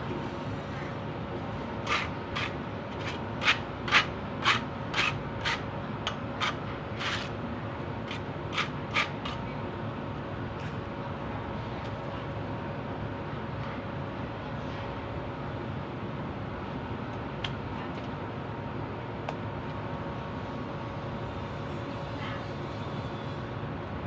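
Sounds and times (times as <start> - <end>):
steady background hum: 0.0 - 24.0
hand tool scraping strokes: 1.8 - 5.6, 6.4 - 7.3.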